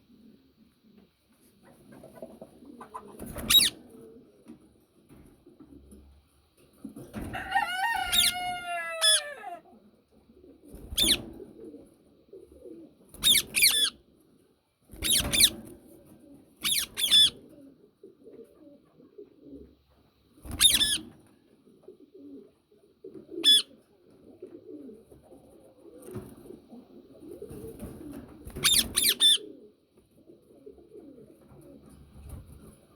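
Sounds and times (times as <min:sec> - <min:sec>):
parakeet calling: 0:03.5 - 0:03.7, 0:08.1 - 0:09.6, 0:10.9 - 0:11.2, 0:13.2 - 0:14.0, 0:15.0 - 0:15.5, 0:16.6 - 0:17.4, 0:20.6 - 0:21.0, 0:23.4 - 0:23.7, 0:28.6 - 0:29.4.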